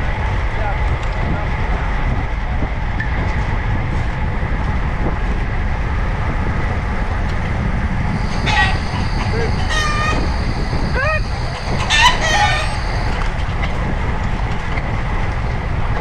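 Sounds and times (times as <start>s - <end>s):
bicycle road noise: 0.0s - 16.0s
wind rumble on microphone: 0.0s - 16.0s
faint steady whine: 7.9s - 13.6s
brief pitched call: 8.1s - 13.4s.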